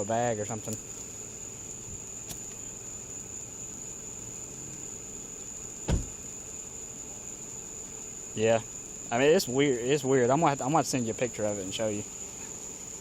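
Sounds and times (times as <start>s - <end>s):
crickets trilling: 0.0s - 13.0s
thump: 5.8s - 6.2s.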